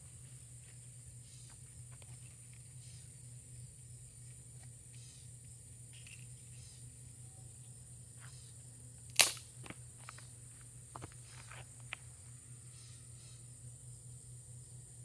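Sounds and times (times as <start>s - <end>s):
high-pitched hiss: 0.0s - 15.0s
sharp crack: 9.1s - 9.7s.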